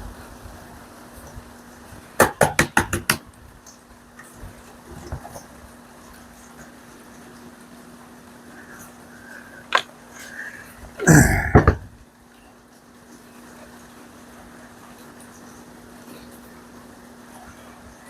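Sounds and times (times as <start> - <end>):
hard objects knocking: 2.2 - 3.2, 11.1 - 11.9.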